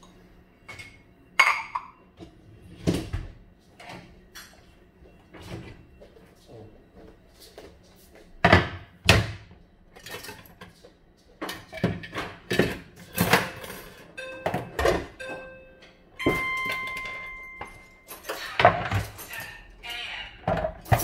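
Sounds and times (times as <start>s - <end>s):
struck object ringing: 14.2s - 18.0s
household knocks and clatter: 20.5s - 21.0s.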